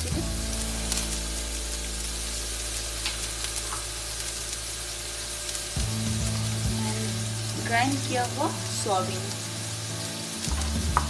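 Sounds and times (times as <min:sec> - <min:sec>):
onion sizzling in oil: 0:00.0 - 0:11.0.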